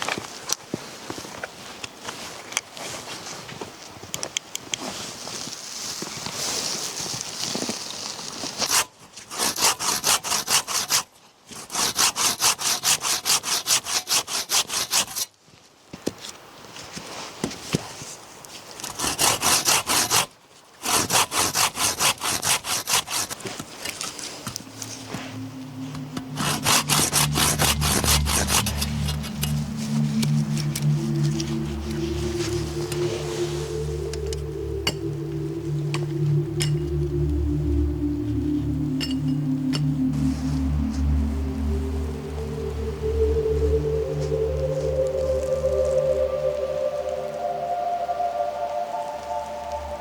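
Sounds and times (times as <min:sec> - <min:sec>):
handsaw cutting wood: 0:08.6 - 0:15.3, 0:18.8 - 0:24.1, 0:26.4 - 0:29.6.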